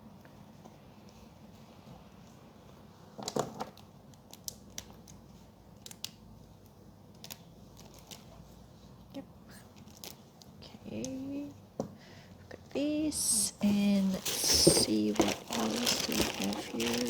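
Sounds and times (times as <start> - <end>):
pens rustling in plastic packaging: 7.1 - 8.9, 12.8 - 17.0.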